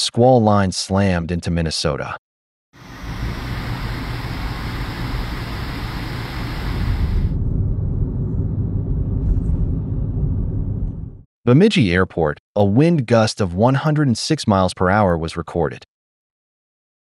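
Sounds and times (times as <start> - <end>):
strong wind and rain: 2.8 - 7.4.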